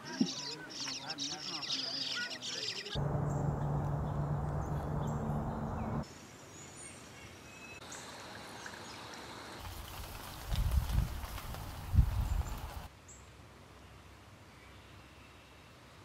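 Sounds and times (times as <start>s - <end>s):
birds chirping: 0.0s - 8.1s.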